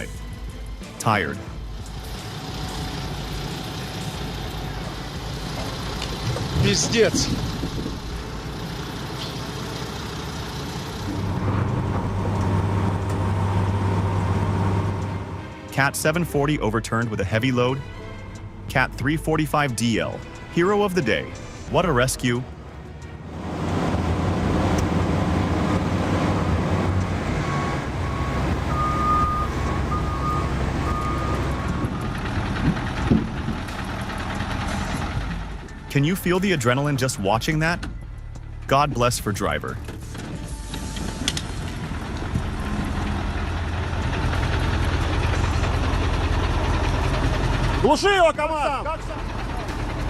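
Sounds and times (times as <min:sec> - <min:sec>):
heavy diesel engine droning: 0:00.0 - 0:50.0
wind noise on microphone: 0:06.3 - 0:08.2
short high beeps: 0:27.5 - 0:31.8.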